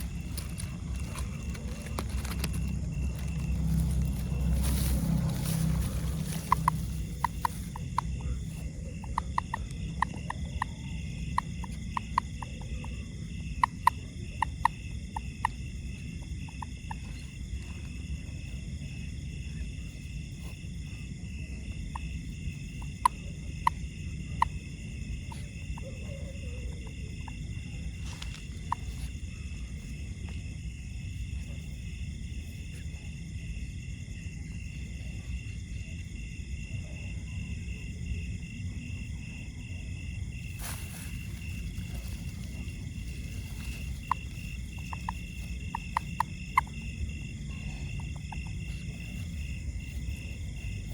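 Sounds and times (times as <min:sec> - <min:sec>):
low rumble: 0:00.0 - 0:09.1
night insects droning: 0:00.0 - 0:50.9.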